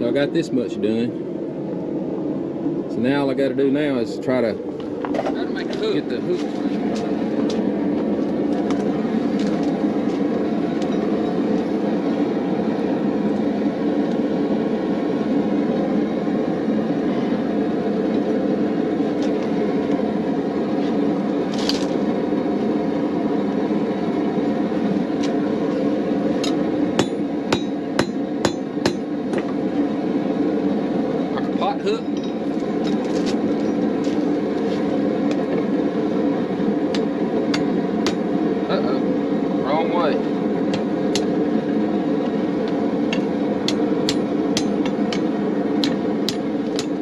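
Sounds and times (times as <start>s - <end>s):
gas forge burner roaring: 0.0s - 47.0s
hammer blows on anvil: 26.4s - 29.1s, 43.1s - 47.0s.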